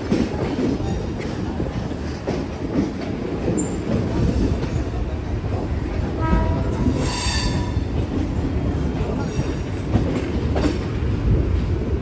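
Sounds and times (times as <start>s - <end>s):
train rumbling: 0.0s - 12.0s
train wheel squeal: 3.5s - 4.0s, 6.8s - 7.9s.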